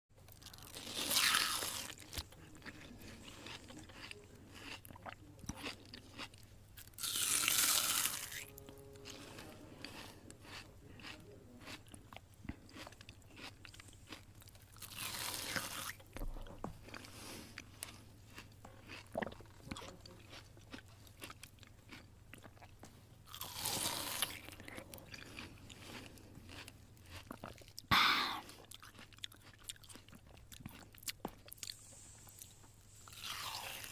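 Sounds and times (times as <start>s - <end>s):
cat chewing blanket: 9.0s - 33.9s.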